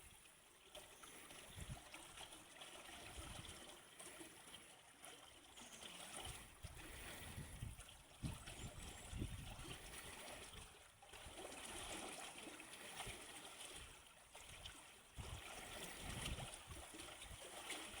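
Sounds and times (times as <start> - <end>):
water rushing and splashing: 8.2 - 18.0.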